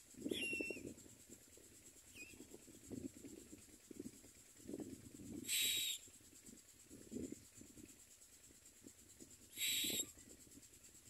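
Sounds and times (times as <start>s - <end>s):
bird calls dipping in pitch: 0.3s - 0.8s, 9.6s - 10.1s.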